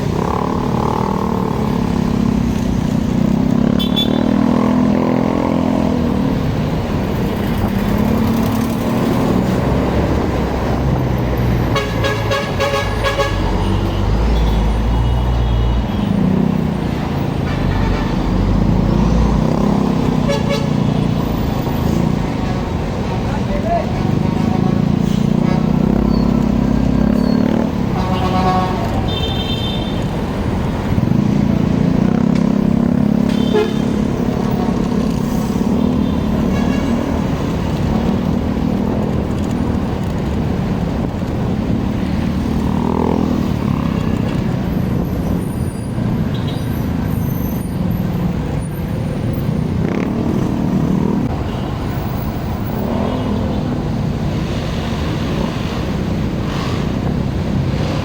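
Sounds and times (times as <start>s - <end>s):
traffic noise: 0.0s - 58.0s
vehicle horn toot: 3.8s - 4.4s, 11.7s - 16.1s, 20.2s - 20.8s, 27.9s - 30.0s, 33.3s - 34.0s.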